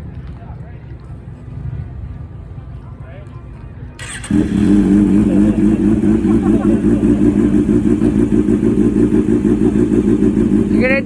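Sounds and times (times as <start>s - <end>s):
motorcycle engine idling: 4.0s - 11.0s.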